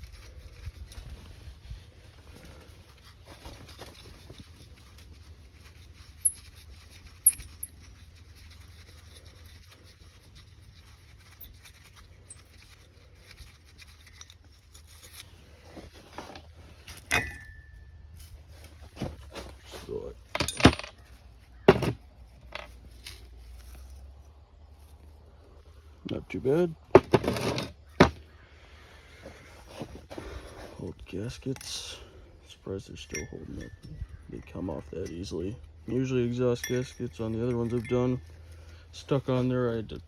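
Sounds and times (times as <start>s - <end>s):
low steady hum: 0.0s - 28.2s
metal parts clicking and shuffling: 2.7s - 9.8s, 10.8s - 24.0s, 26.9s - 28.2s, 33.0s - 40.0s
metal clink ringing: 17.0s - 18.0s, 20.4s - 20.9s, 33.0s - 34.2s, 36.5s - 38.5s.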